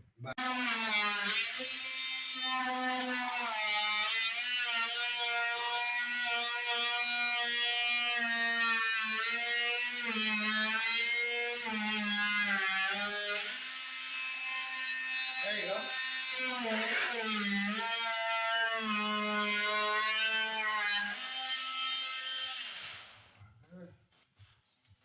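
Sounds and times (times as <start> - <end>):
power drill whining under load: 21.2 - 23.4.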